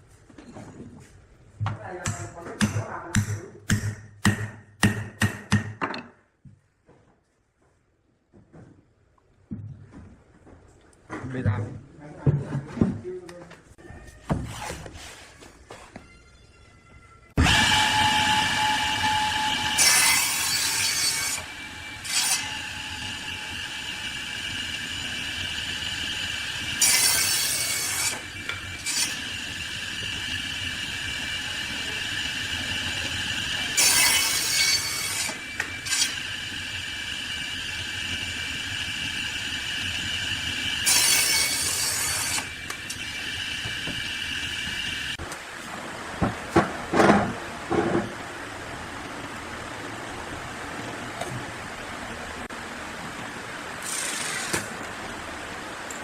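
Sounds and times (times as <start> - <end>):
woodworking machine humming: 17.4 - 45.2.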